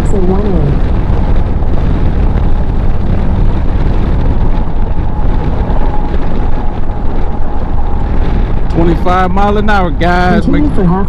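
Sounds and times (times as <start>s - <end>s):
motorcycle engine running: 0.0s - 11.0s
wind on microphone: 0.0s - 11.0s.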